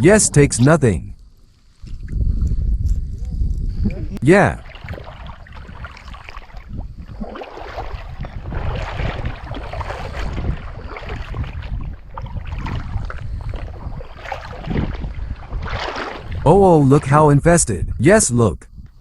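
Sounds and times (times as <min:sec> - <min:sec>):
wind buffeting microphone: 0:00.0 - 0:19.0
water lapping against a boat: 0:04.5 - 0:17.2.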